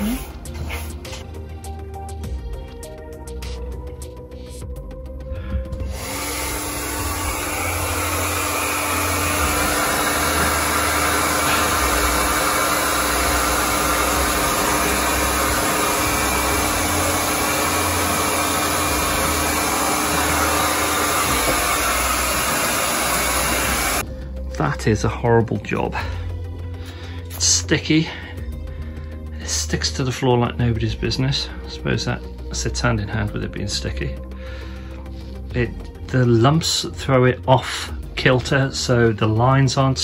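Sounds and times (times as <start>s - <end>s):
hair dryer running: 0.0s - 1.0s, 5.7s - 24.1s.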